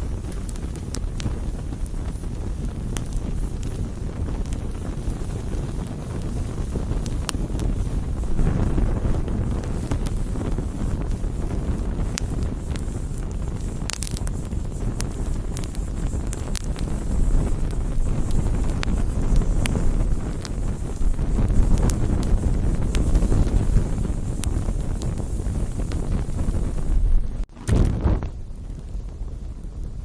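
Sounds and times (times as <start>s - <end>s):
fire low rumble: 0.0s - 30.0s
wood crackling and popping: 0.0s - 30.0s.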